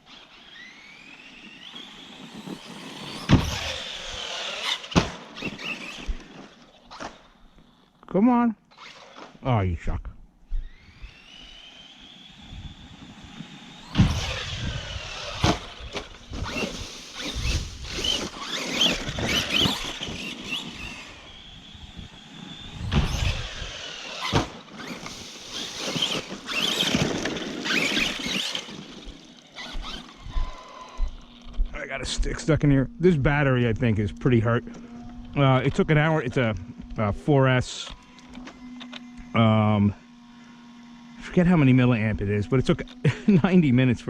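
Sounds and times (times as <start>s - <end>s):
electric motor whining: 0.0s - 8.0s, 10.4s - 44.0s
tyres churning over rough ground: 12.0s - 37.7s.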